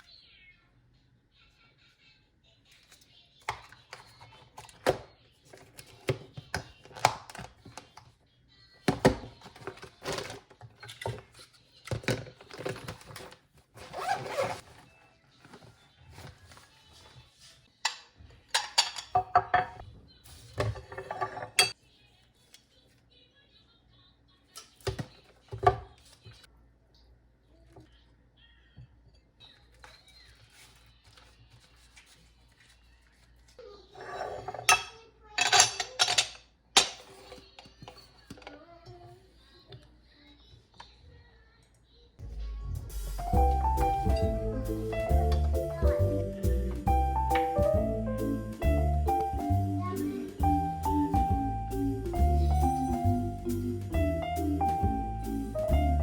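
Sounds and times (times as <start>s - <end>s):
kitchenware clinking and knocking: 17.9s - 19.9s, 20.6s - 21.8s, 33.9s - 38.6s
music: 42.2s - 56.0s.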